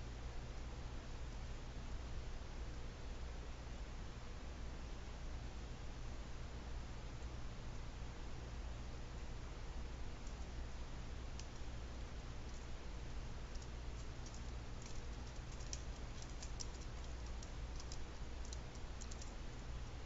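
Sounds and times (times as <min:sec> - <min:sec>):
light clicks and ticks: 0:11.4 - 0:11.7, 0:12.5 - 0:12.7, 0:13.5 - 0:19.7.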